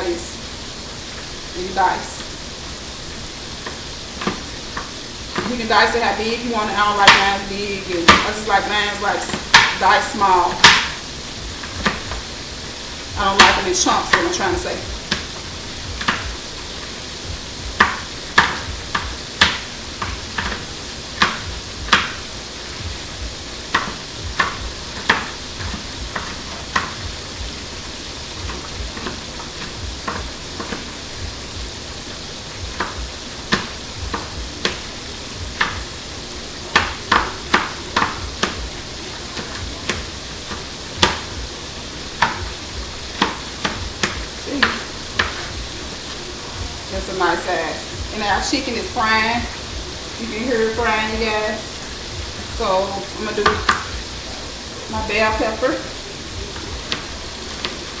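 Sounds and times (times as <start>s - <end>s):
chicken sizzling in oil: 0.0s - 58.0s
knife tapping on cutting board: 10.6s - 11.0s, 17.8s - 20.6s, 23.7s - 25.3s.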